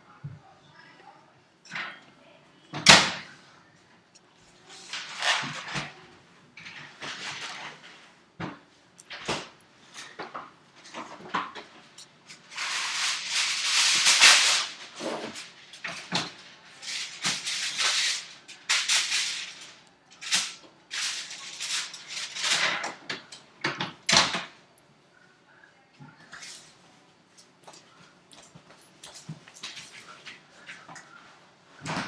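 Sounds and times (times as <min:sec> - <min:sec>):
rustling and rattling handling noises: 0:27.4 - 0:32.0.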